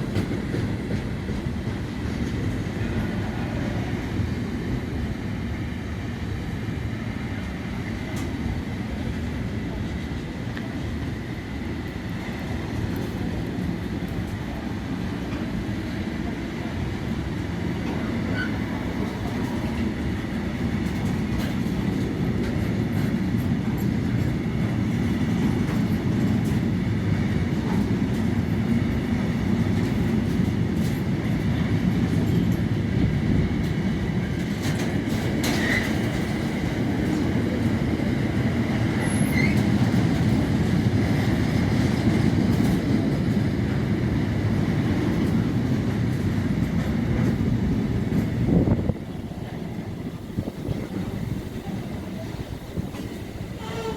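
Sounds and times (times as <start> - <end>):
train rumbling on track: 0.0 - 53.9
wheels clicking on rails: 17.2 - 53.9.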